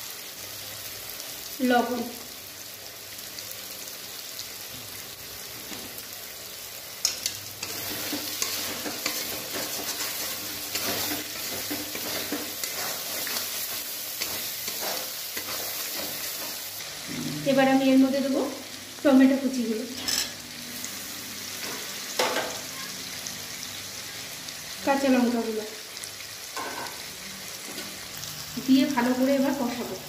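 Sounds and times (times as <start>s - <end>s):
paste sizzling in hot oil: 0.0s - 30.0s
metal spatula scraping pan: 7.1s - 17.6s, 20.0s - 20.4s.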